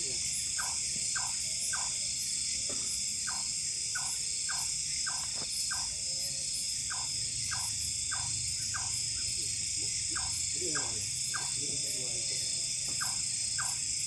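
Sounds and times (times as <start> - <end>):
insects trilling: 0.0 - 14.0
short repeating calls: 10.1 - 11.6.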